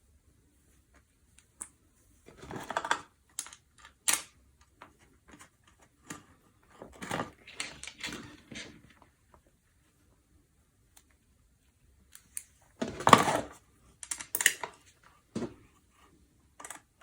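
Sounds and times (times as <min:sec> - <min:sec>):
small metal parts clicking: 0:03.3 - 0:04.3, 0:14.0 - 0:14.8.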